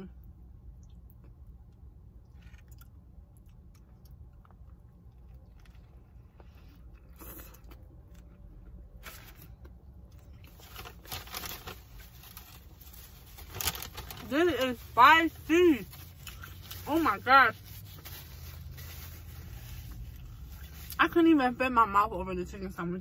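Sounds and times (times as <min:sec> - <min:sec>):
person chewing crispy food: 0:00.7 - 0:14.1, 0:15.9 - 0:16.8.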